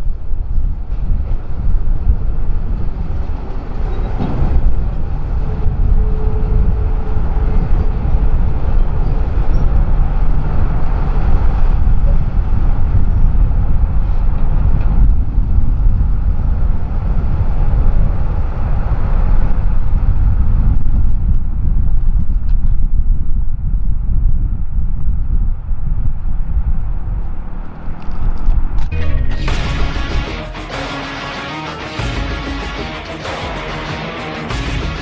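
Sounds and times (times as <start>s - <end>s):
freight train rumbling past: 0.1s - 13.0s, 29.0s - 35.0s.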